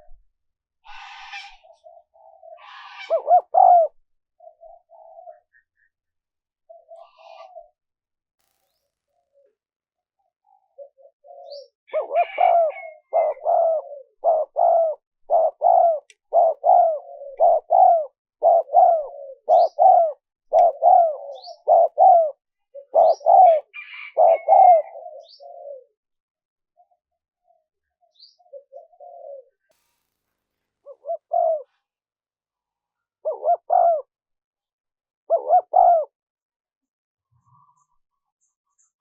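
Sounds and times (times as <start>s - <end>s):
dove cooing: 0.9s - 5.7s, 6.7s - 7.8s, 10.4s - 26.0s, 28.1s - 29.6s, 30.8s - 31.7s, 33.2s - 34.1s, 35.3s - 36.2s.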